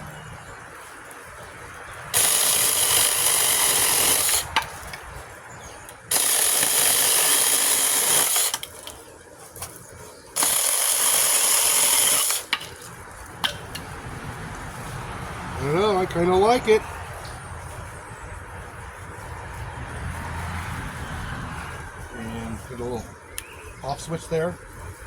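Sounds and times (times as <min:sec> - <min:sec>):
mini chainsaw whirring: 0:02.1 - 0:04.6, 0:06.1 - 0:09.0, 0:10.4 - 0:12.6.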